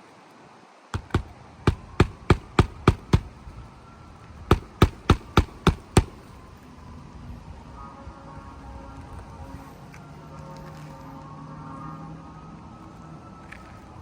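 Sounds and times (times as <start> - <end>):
hammer driving nails into shingles: 1.0 - 3.4, 4.5 - 6.3.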